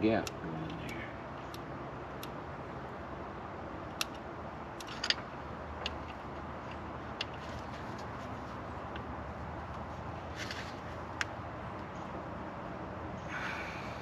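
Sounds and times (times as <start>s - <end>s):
small sharp metallic clicks: 0.2s - 2.4s, 3.9s - 8.1s.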